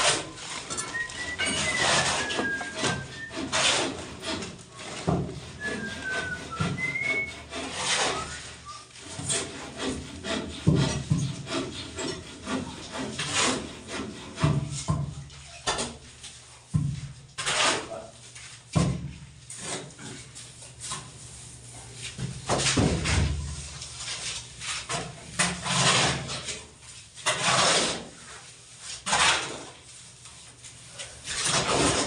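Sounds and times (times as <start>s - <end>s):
rubbing and scraping strokes: 0.0s - 14.8s, 23.9s - 32.0s.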